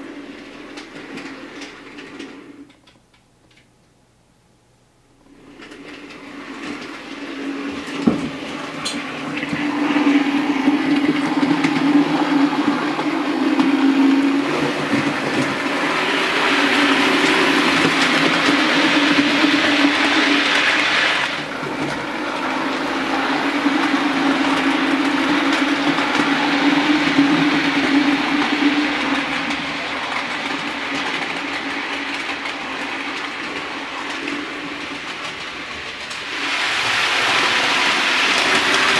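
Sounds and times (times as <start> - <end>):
wheel and track noise: 0.0 - 3.7, 5.2 - 38.9.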